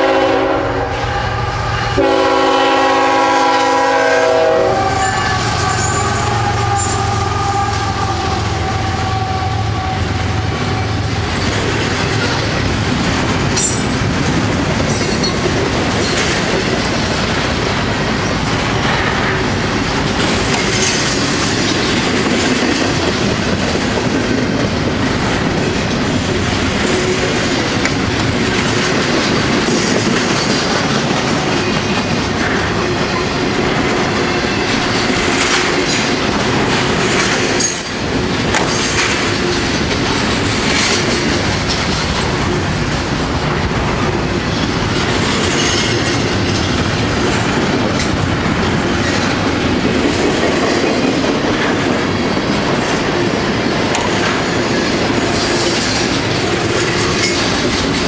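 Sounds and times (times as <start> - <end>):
freight train rumbling: 0.0 - 58.0
high wheel squeals: 4.8 - 11.4
wheels clacking over rail joints: 10.3 - 58.0.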